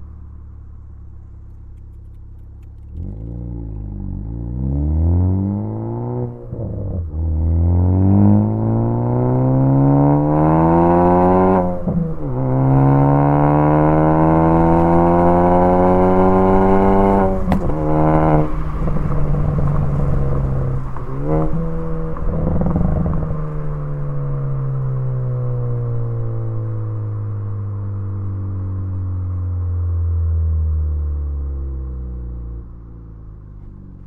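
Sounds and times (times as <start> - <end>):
car engine accelerating hard: 0.0 - 34.0
exhaust pops and crackles: 1.2 - 4.0, 15.9 - 24.2.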